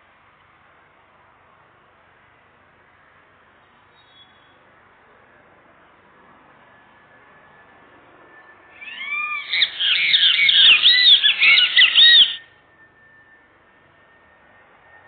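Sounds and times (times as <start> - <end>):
faint steady high tone: 2.3 - 15.0
bird squawking: 8.8 - 12.5.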